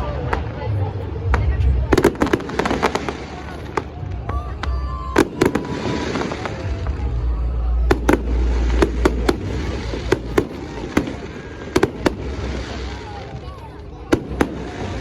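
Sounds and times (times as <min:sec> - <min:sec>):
fireworks bangs and cracks: 0:00.0 - 0:15.0
low rumble: 0:00.0 - 0:15.0.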